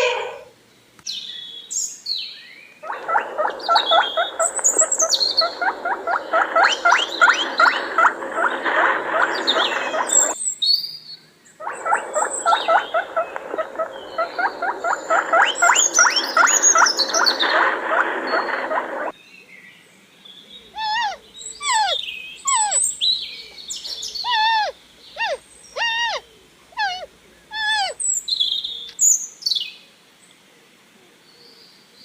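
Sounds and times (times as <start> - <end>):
high whistling calls: 1.1 - 10.9, 11.6 - 19.2, 20.7 - 29.6
small animals chirping and squeaking: 2.8 - 10.4, 11.6 - 19.2, 20.7 - 29.2.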